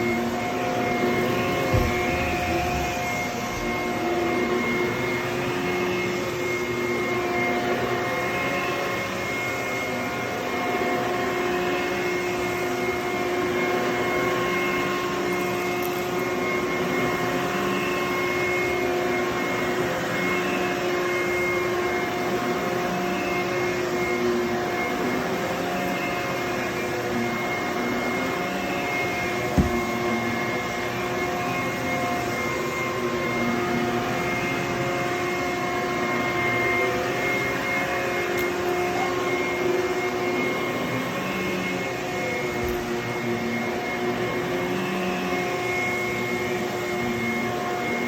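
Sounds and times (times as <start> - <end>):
vacuum cleaner running: 0.0 - 48.0.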